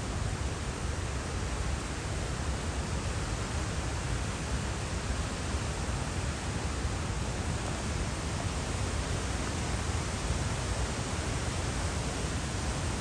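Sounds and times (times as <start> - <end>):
creek rushing: 7.6 - 13.0.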